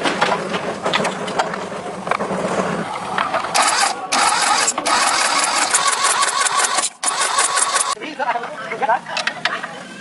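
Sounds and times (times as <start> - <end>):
power tool whining and grinding: 3.5 - 8.0.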